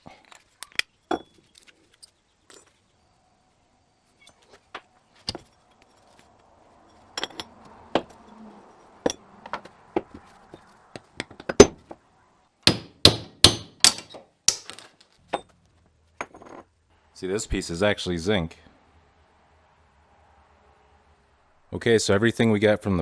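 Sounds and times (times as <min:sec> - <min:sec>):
metal parts knocking and clinking: 0:00.6 - 0:01.7, 0:12.7 - 0:15.5
heavy metal strikes: 0:12.7 - 0:14.7.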